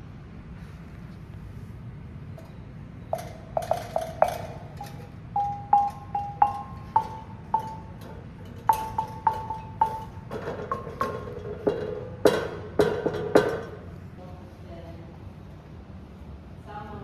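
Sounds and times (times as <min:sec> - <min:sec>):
tuned percussion struck by hand: 0:04.8 - 0:08.0.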